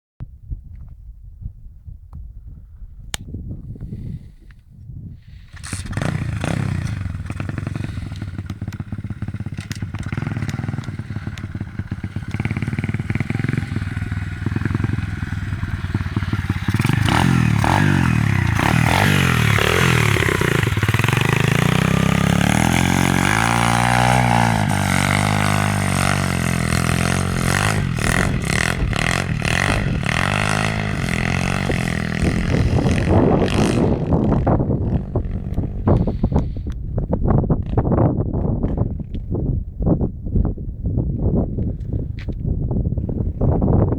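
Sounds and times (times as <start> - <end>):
pit bike engine revving: 5.4 - 36.7.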